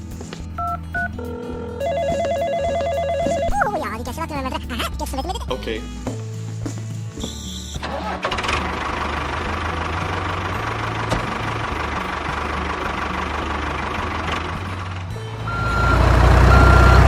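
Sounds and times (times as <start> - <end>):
construction machine engine running: 7.8 - 17.0.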